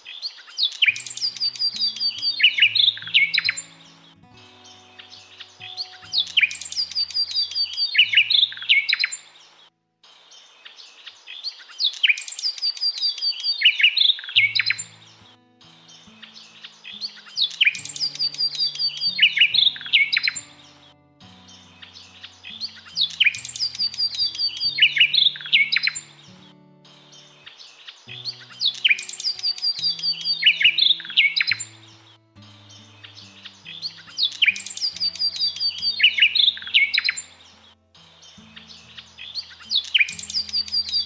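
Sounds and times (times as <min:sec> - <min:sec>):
bird chirping: 0:00.0 - 0:41.0
soft low music: 0:01.0 - 0:09.2, 0:14.4 - 0:41.0.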